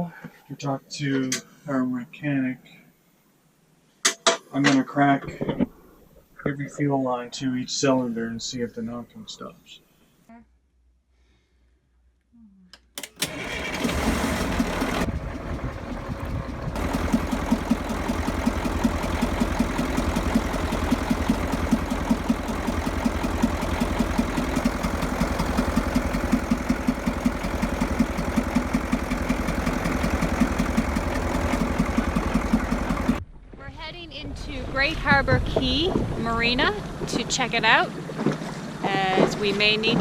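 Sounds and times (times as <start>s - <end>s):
diesel engine running: 13.0s - 33.2s
engine knocking: 13.2s - 33.2s.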